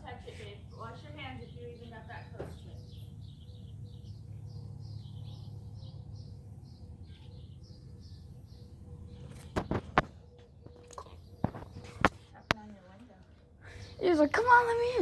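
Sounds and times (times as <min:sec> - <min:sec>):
bird chirping: 0:00.7 - 0:13.0.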